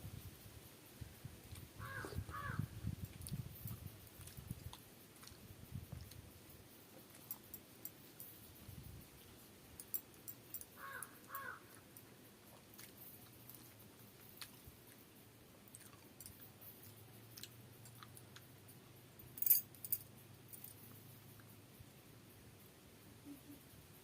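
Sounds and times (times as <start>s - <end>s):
soft chewing: 1.4s - 8.4s, 10.1s - 19.0s.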